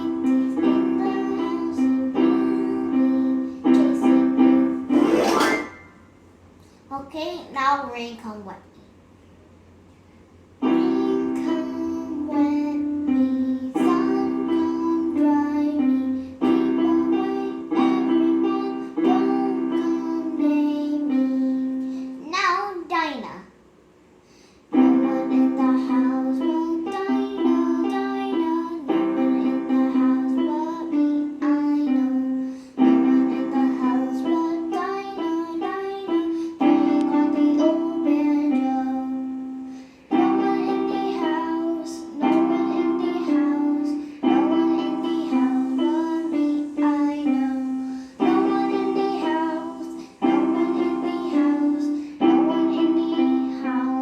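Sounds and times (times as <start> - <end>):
simple children's tune: 0.0 - 7.4, 10.2 - 54.0.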